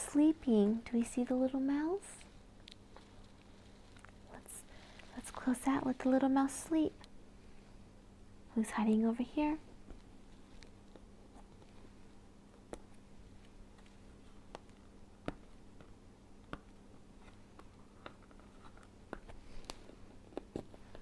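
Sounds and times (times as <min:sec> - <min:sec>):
low steady hum: 0:00.0 - 0:21.0
cardboard book clicks and taps: 0:14.5 - 0:21.0.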